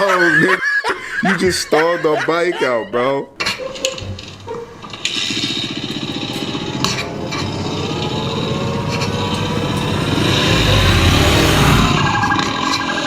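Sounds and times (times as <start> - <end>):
dirt bike engine revving: 4.7 - 13.0.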